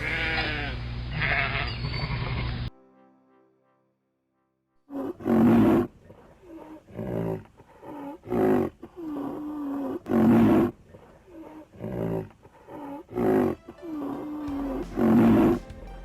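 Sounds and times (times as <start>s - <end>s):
big cat roaring: 4.9s - 15.6s.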